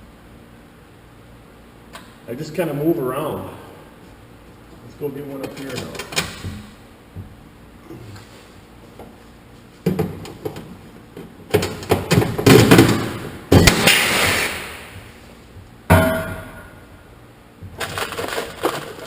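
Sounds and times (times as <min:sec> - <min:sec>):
tools knocking and clattering: 0:05.4 - 0:07.4, 0:09.8 - 0:13.7.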